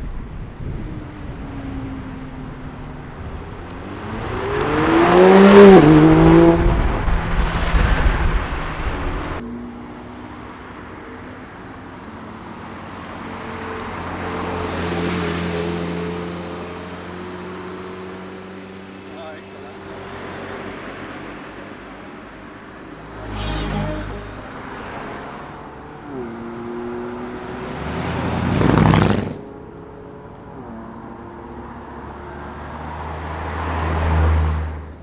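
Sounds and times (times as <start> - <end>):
car engine approaching: 0.2 - 35.0
car accelerating past: 3.3 - 9.4, 23.0 - 30.2.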